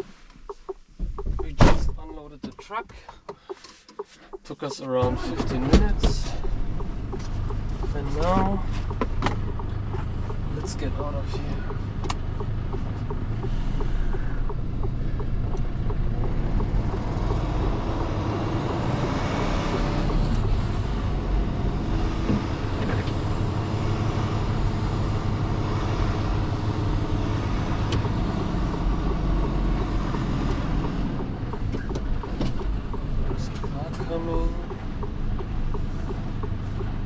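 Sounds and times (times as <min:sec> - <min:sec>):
truck diesel engine rumbling: 0:00.0 - 0:37.0.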